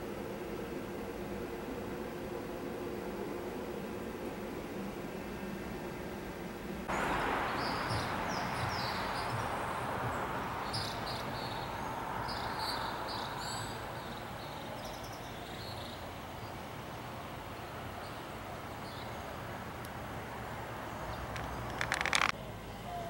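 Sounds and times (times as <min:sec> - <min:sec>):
steady background rush: 0:00.0 - 0:22.4
faint hum: 0:00.0 - 0:23.0
small birds chirping: 0:06.9 - 0:23.0.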